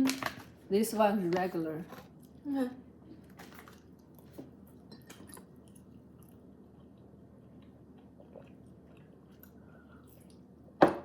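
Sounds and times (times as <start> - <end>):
chewing soft snack: 5.2 - 10.6.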